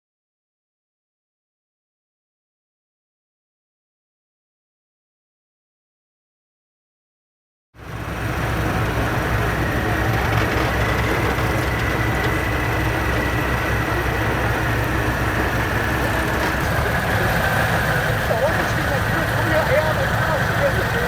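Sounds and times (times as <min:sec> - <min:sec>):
diesel truck engine running: 0:07.8 - 0:21.0
thin steady whine: 0:07.9 - 0:21.0.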